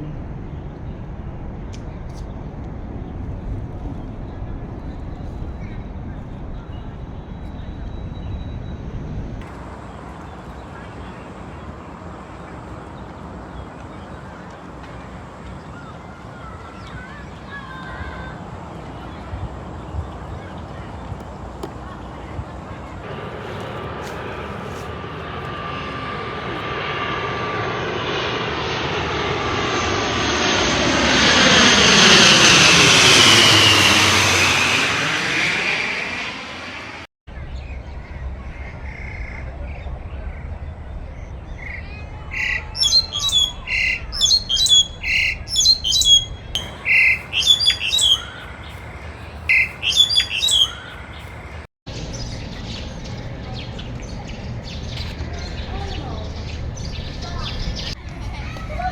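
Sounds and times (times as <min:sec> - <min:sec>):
airplane passing overhead: 0:00.0 - 0:58.9
bird chirping: 0:37.4 - 0:58.0.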